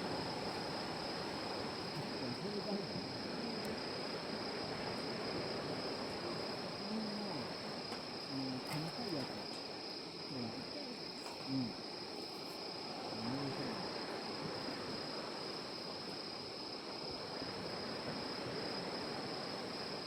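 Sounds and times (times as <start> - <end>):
crickets trilling: 0.0 - 20.0
faint distant voices: 1.9 - 4.0.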